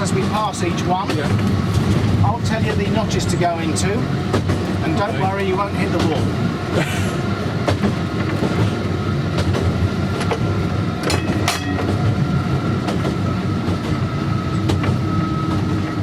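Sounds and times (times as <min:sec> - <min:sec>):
tram rumbling on track: 0:00.0 - 0:16.0.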